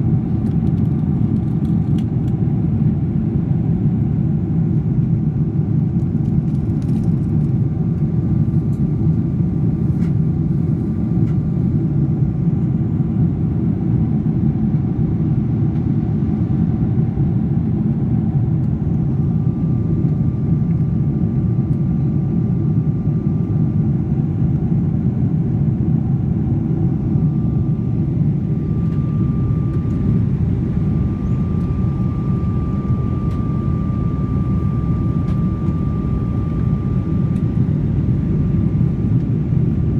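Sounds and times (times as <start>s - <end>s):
airplane cabin engine rumble: 0.0s - 39.9s
faint high whine: 27.0s - 39.0s.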